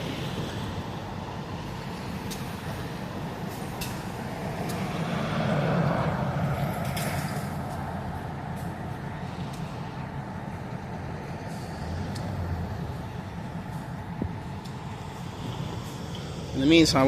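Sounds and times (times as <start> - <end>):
low rumble of vehicle engines: 0.0 - 17.0
vehicle passing by: 0.0 - 17.0.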